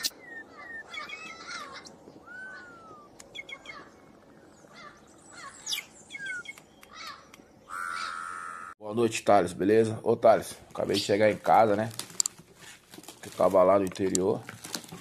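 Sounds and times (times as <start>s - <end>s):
bird whistle falling in pitch: 2.2s - 3.8s
short sharp bird chirps: 5.4s - 7.3s.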